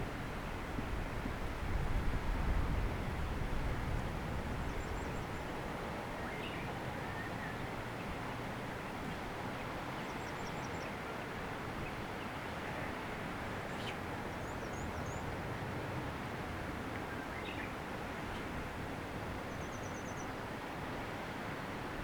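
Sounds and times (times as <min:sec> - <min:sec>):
wind noise on microphone: 0:00.0 - 0:05.5.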